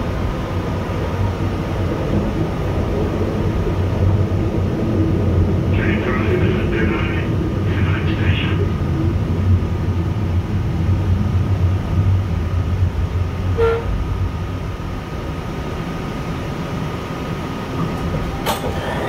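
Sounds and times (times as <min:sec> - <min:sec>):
train braking rumble: 0:13.2 - 0:19.0.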